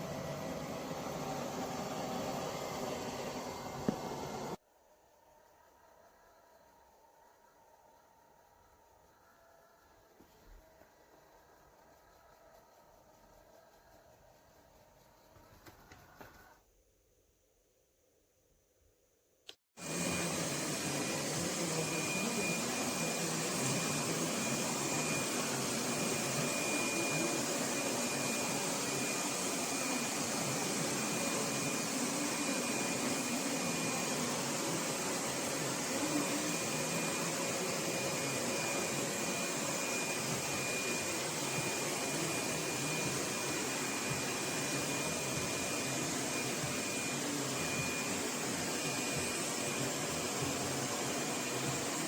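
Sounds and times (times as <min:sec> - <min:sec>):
faint high whine: 0:04.6 - 0:16.6
robot vacuum suction whirr: 0:19.8 - 0:52.0.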